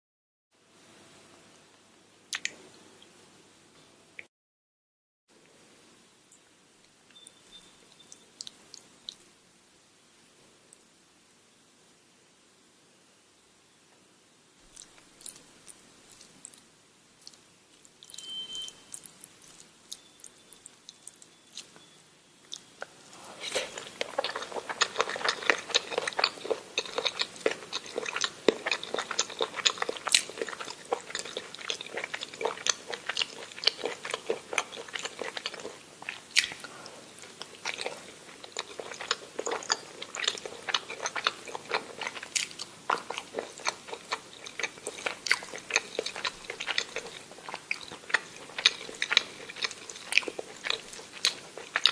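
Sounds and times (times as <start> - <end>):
person chewing food: 14.7 - 51.9.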